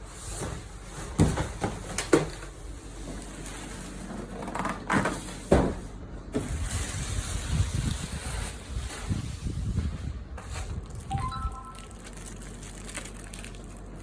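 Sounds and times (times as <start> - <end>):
knocks and thumps on box: 1.1 - 2.4.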